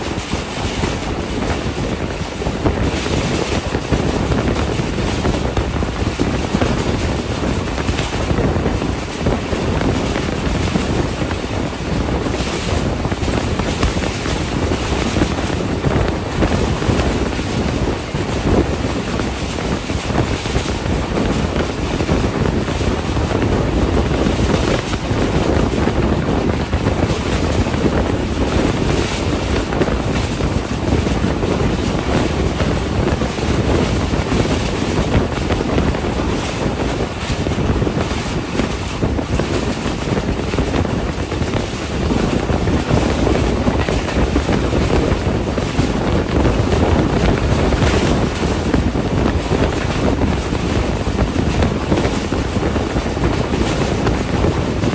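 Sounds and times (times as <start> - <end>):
train wheels rumbling on track: 0.0 - 54.9
wind rushing on microphone: 0.0 - 54.9.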